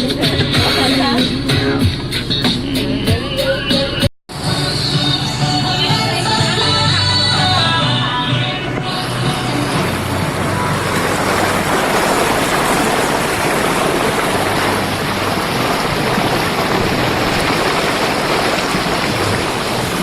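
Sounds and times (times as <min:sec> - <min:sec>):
boat engine humming: 0:00.0 - 0:20.0
rush of water and air: 0:08.7 - 0:20.0.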